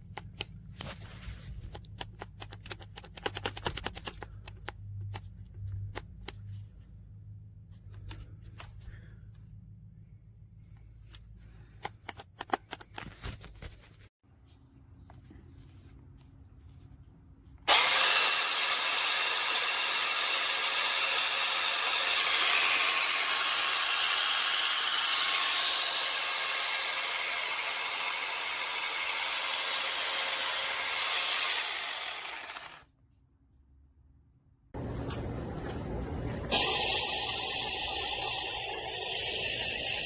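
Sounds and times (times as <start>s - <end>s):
mini chainsaw sawing wood: 17.7s - 32.9s, 36.5s - 40.0s.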